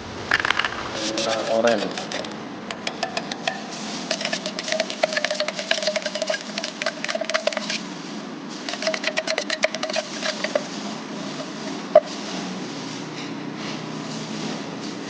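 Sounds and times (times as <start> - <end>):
paint stirring clicks and scrapes: 0.3 - 8.0, 8.6 - 12.5.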